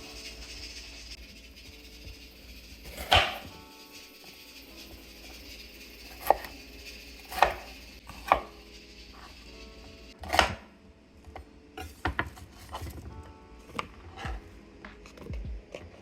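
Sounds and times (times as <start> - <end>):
knife chopping vegetables: 2.9 - 3.5, 6.1 - 6.5, 7.3 - 8.5, 10.2 - 10.6.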